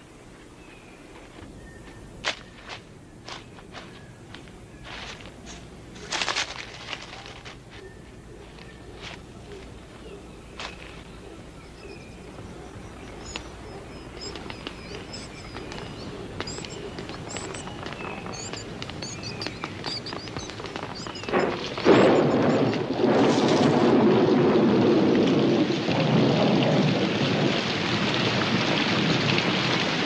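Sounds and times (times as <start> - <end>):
birds high chirps: 7.2 - 23.0
heavy rain: 12.3 - 30.0
thunder crack: 20.8 - 30.0.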